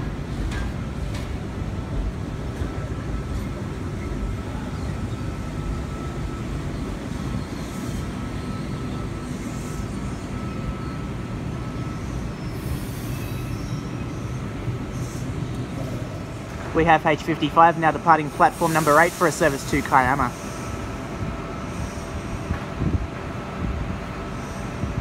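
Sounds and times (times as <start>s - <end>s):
electric train rumbling: 0.0s - 25.0s
thin steady whine: 2.6s - 22.6s
short hissing bursts: 18.4s - 20.7s.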